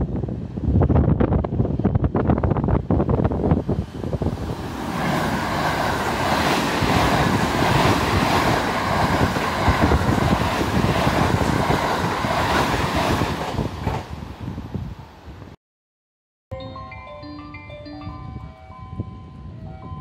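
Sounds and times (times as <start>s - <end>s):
train rushing past: 0.2s - 15.3s.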